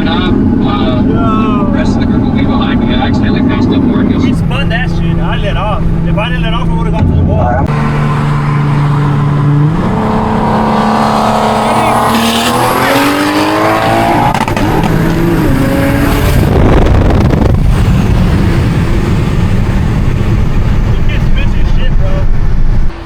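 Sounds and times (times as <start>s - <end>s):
car engine accelerating: 0.0s - 23.0s
loud even rush of noise: 0.0s - 23.0s.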